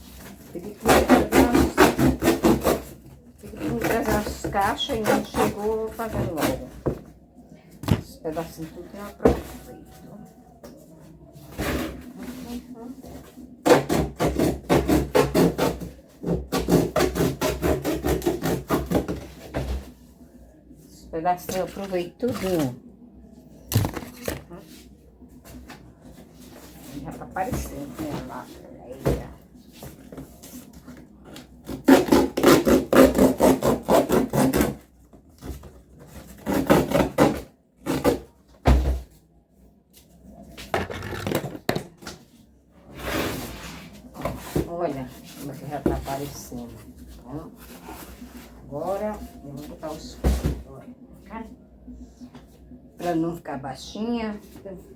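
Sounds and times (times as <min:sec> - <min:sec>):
knife sawing through cardboard: 0:00.8 - 0:03.0, 0:16.5 - 0:18.9, 0:31.7 - 0:34.8, 0:36.3 - 0:38.2.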